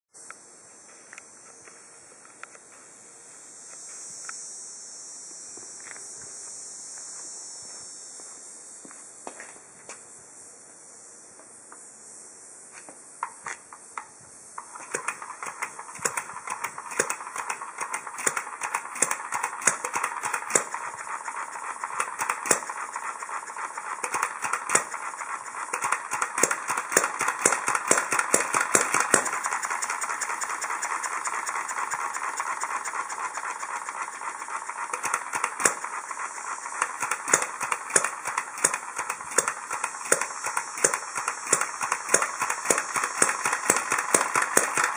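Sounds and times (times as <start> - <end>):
hit-and-miss engine running: 14.6 - 44.9.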